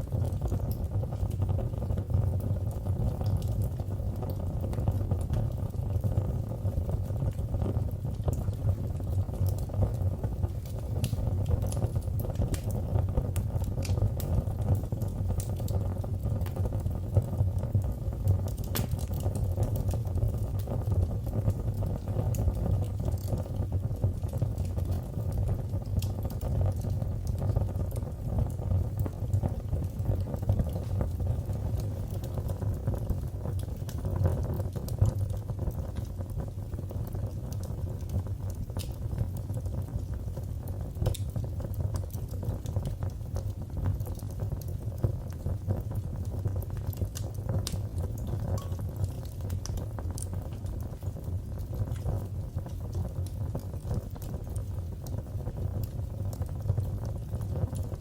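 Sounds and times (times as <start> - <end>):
fire burning in fireplace: 0.0 - 58.0
fire crackles and pops: 0.0 - 58.0.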